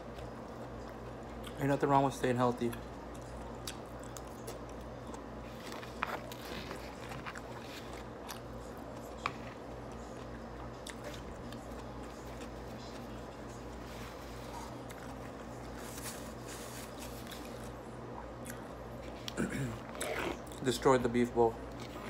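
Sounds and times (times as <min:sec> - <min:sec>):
low steady hum: 0:00.0 - 0:22.0
person chewing: 0:02.7 - 0:13.0, 0:17.0 - 0:20.6.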